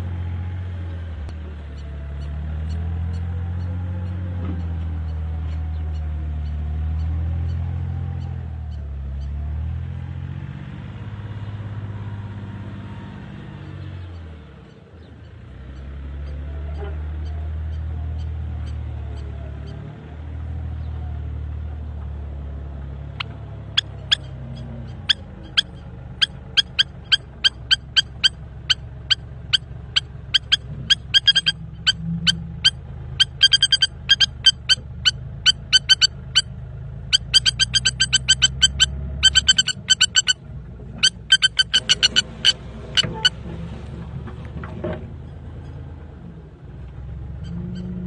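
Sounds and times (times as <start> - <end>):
bird alarm calls: 23.1 - 36.5, 37.1 - 40.4, 41.0 - 43.4.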